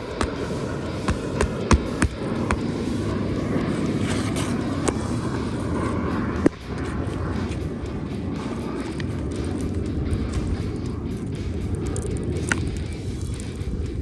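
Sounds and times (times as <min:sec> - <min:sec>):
sharp tap: 0:00.2 - 0:02.8.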